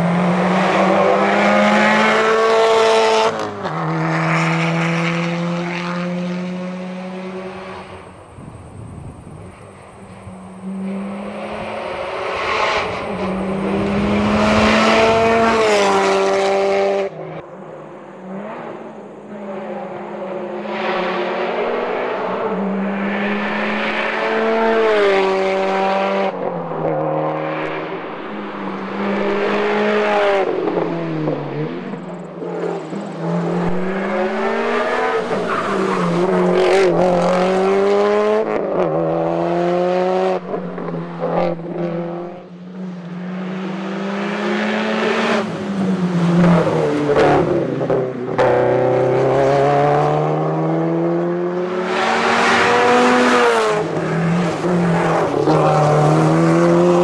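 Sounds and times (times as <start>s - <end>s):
rally car engine revving: 0.0s - 17.4s, 18.2s - 57.0s.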